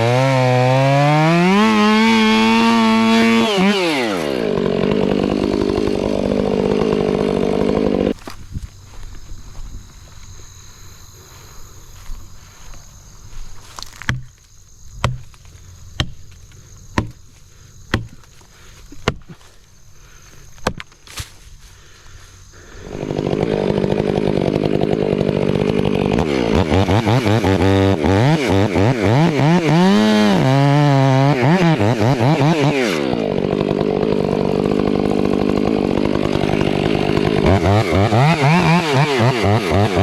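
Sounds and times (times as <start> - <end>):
chainsaw idling and revving: 0.0 - 9.0, 21.6 - 40.0
sharp knocks: 14.0 - 14.3, 17.0 - 17.2, 17.9 - 18.2.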